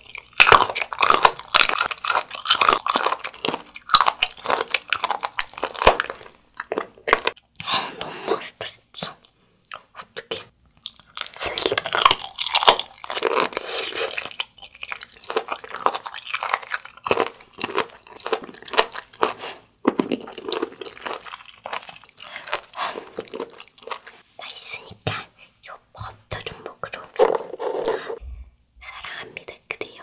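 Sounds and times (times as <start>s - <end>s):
crunchy chewing: 0.0s - 7.4s, 10.8s - 24.2s.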